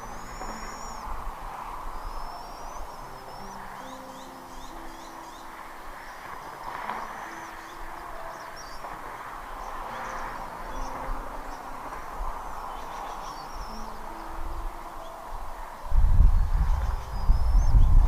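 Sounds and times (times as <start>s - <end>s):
high bird chirps: 0.0s - 18.0s
soft background music: 0.0s - 18.0s
steady rushing noise: 0.0s - 18.0s.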